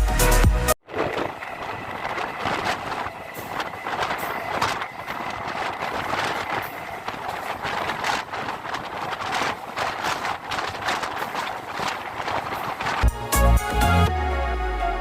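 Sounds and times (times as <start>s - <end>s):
background music: 0.0s - 0.8s, 13.0s - 15.0s
electric train rushing along track: 0.8s - 14.0s
train wheels clattering over rails: 1.2s - 13.1s.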